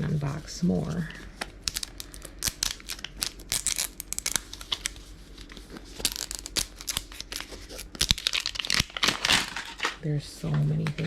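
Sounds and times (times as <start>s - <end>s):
plastic packaging crinkling and tearing: 1.4s - 10.0s.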